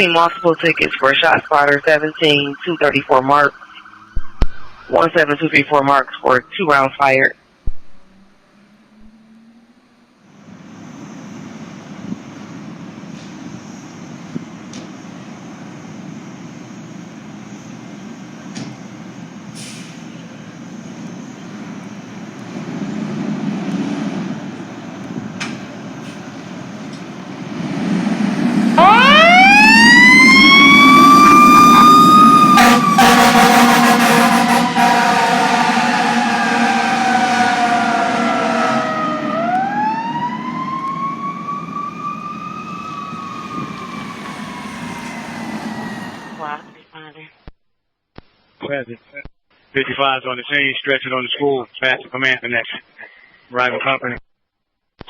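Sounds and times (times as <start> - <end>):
heavy truck engine rumbling: 7.5 - 46.8
air hiss: 19.5 - 20.4.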